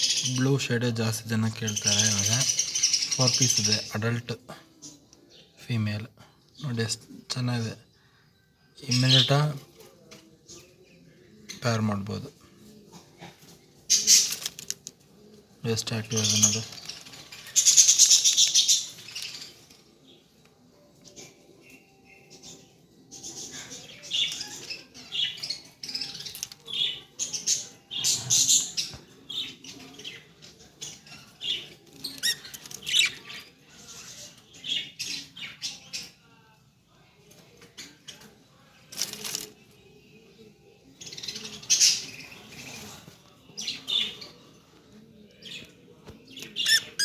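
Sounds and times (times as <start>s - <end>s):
wings fluttering and scrabbling: 12.9s - 15.2s, 16.1s - 20.0s, 37.6s - 39.7s, 41.5s - 43.3s
budgerigars chirping: 17.6s - 19.5s, 31.5s - 33.3s, 46.4s - 47.0s.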